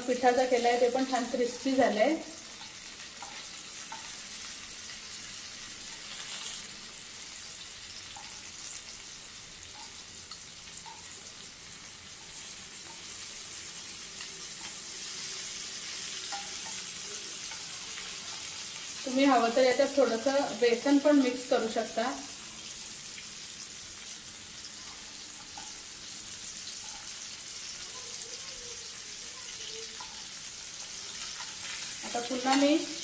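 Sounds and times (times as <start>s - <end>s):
chicken sizzling in oil: 0.0s - 33.0s
tongs clicking: 2.6s - 4.2s, 9.7s - 11.1s, 16.2s - 18.1s, 24.8s - 25.8s, 30.0s - 30.3s.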